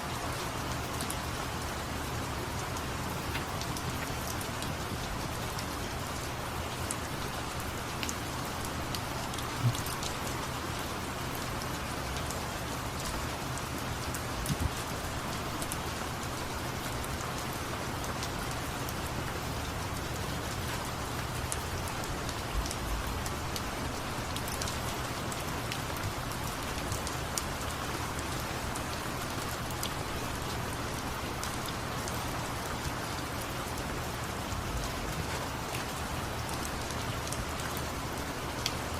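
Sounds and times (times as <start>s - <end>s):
louder rain taps: 0.0s - 12.4s, 13.0s - 15.8s
rain drips ticking: 0.0s - 38.9s
steady rain hissing: 0.0s - 38.9s.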